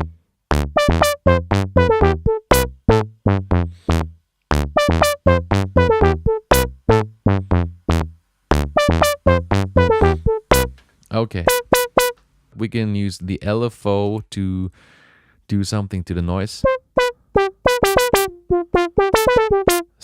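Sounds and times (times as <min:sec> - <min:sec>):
drum machine synth sequence: 0:00.0 - 0:10.8, 0:11.4 - 0:12.2, 0:16.6 - 0:19.9.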